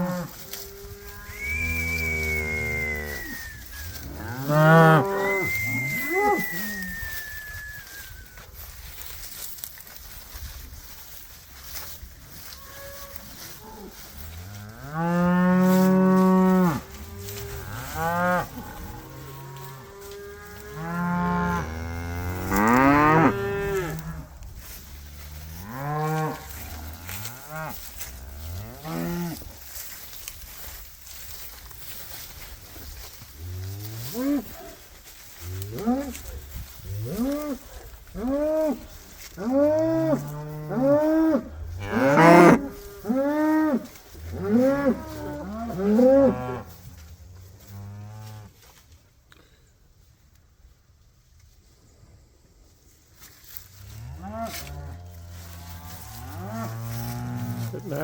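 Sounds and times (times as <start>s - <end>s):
cattle mooing: 39.4s - 42.6s.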